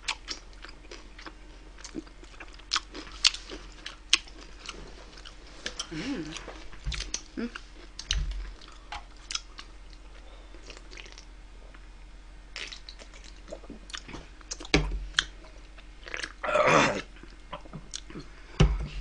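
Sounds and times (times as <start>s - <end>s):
close-up chewing: 0.0s - 11.3s, 12.6s - 16.4s.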